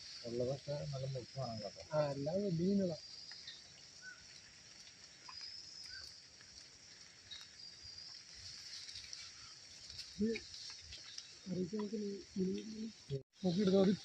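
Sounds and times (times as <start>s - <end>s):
faint insect chirps: 0.0s - 14.0s
insects droning: 0.0s - 14.0s.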